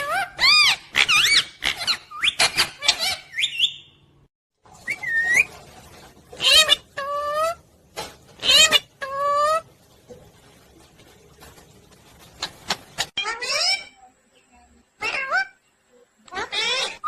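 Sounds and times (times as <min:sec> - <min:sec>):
parrot squawking and whistling: 0:00.0 - 0:04.0, 0:04.8 - 0:05.5, 0:08.4 - 0:09.6, 0:13.1 - 0:14.0.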